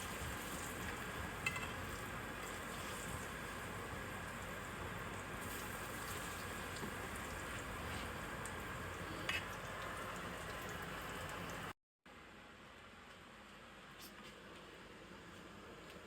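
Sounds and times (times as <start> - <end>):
oil sizzling in a pan: 0.0 - 11.7.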